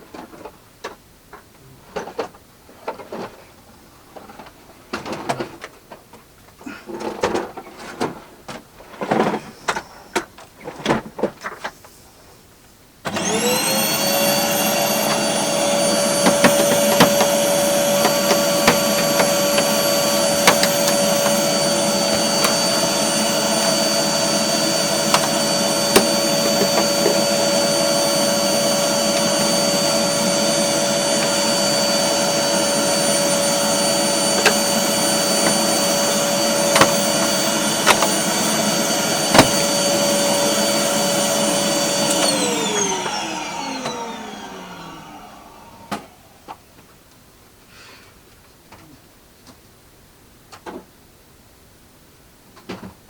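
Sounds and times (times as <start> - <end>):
vacuum cleaner motor whining: 13.0 - 46.9.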